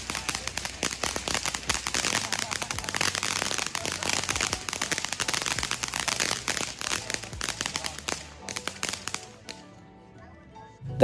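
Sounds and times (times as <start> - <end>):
fountain firework crackling: 0.0 - 9.7.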